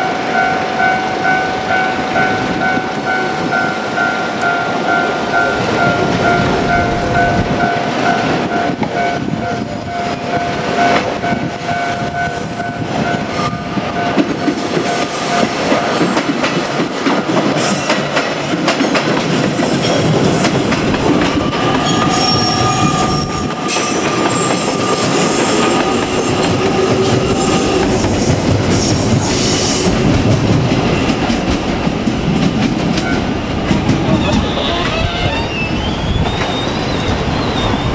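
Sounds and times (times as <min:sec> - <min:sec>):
level crossing warning bell: 0:00.0 - 0:17.0, 0:19.5 - 0:28.0
electric train rumbling past: 0:00.0 - 0:37.9.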